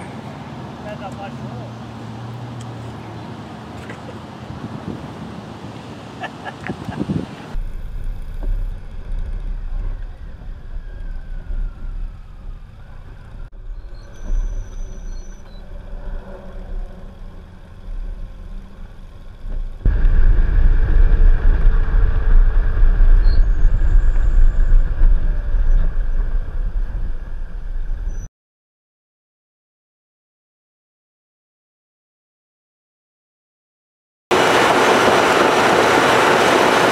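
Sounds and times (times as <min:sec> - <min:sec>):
motorcycle engine rumble: 0:07.4 - 0:28.3.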